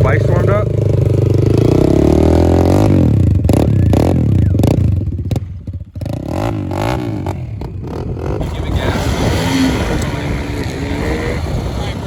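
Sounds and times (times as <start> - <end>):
pit bike engines revving: 0.0 - 12.0.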